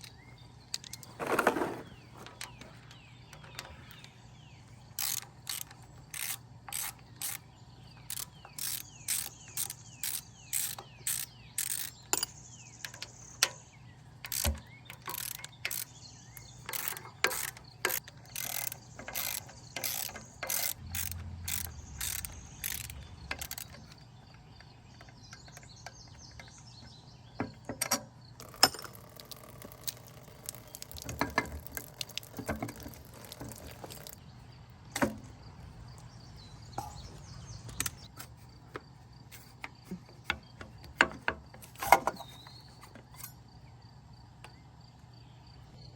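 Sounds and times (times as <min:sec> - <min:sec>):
ratchet wrench clicking: 0:05.0 - 0:07.4, 0:08.0 - 0:13.0, 0:14.2 - 0:24.0, 0:28.4 - 0:34.2
tools and parts knocking: 0:14.2 - 0:34.2, 0:34.9 - 0:35.3, 0:36.7 - 0:43.4.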